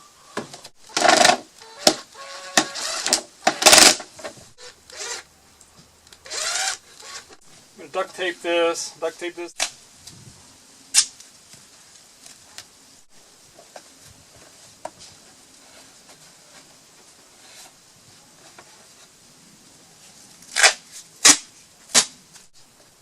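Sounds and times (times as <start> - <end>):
duct tape ripping: 0.9 - 5.3, 10.9 - 11.3, 20.4 - 22.5.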